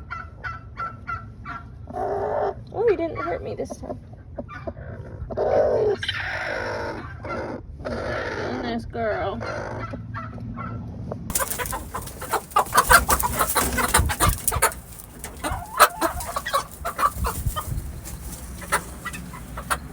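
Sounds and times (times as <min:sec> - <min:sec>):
chickens clucking: 0:00.0 - 0:10.6, 0:11.3 - 0:19.9
rustling and scratching: 0:11.3 - 0:19.9.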